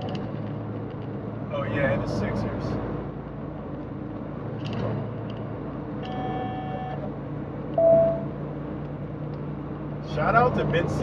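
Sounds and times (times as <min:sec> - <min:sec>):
road noise: 0:00.0 - 0:11.0
truck engine hum: 0:00.0 - 0:11.0
short beep: 0:06.1 - 0:07.1, 0:07.8 - 0:08.3
faint pitched tone: 0:07.8 - 0:08.2.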